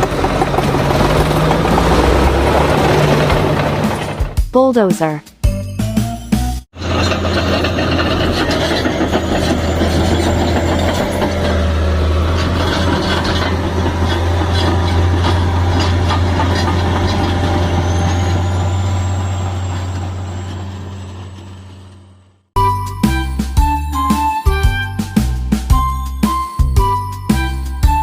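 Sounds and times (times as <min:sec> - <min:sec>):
bulldozer diesel engine: 0:00.0 - 0:04.4, 0:06.8 - 0:28.0
rapid clanking: 0:00.0 - 0:04.4, 0:06.8 - 0:17.4.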